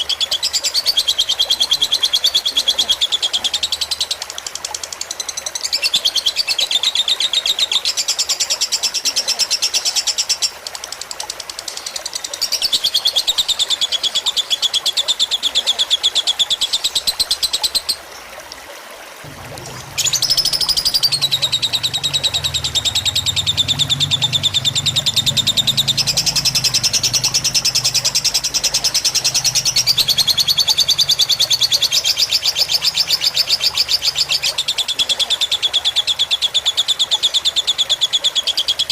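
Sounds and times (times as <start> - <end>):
trickling water: 0.0 - 38.9
low burble: 19.2 - 33.9
lovebird chattering song: 19.7 - 38.9.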